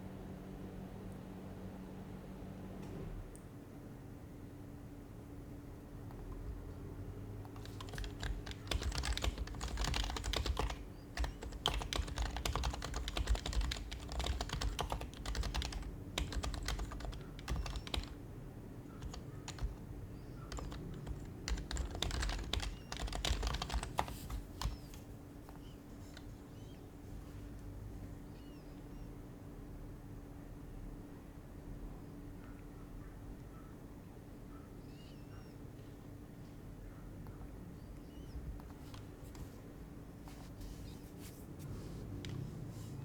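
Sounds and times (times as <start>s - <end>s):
steady low hum: 0.0s - 43.0s
keyboard typing: 6.0s - 6.8s, 7.4s - 18.2s, 19.0s - 26.3s.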